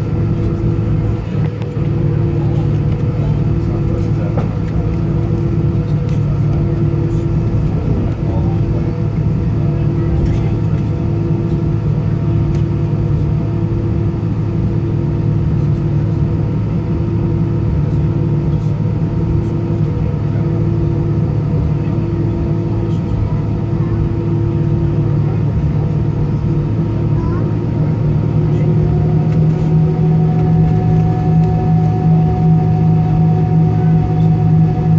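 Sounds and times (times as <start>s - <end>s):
airplane cabin engine hum: 0.0s - 34.9s
low pulsing tone: 21.2s - 34.9s.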